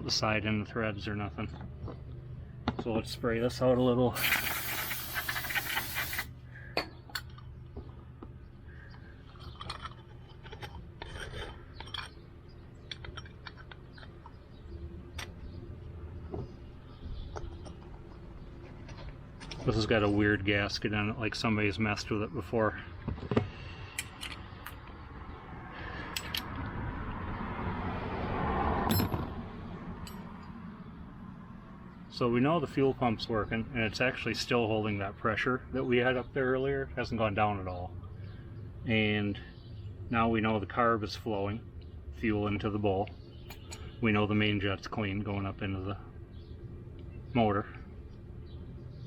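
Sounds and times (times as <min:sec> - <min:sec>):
fluid hissing at carburetor: 0:04.2 - 0:06.3
small metal parts clicking and scraping: 0:04.2 - 0:06.3, 0:09.2 - 0:14.4.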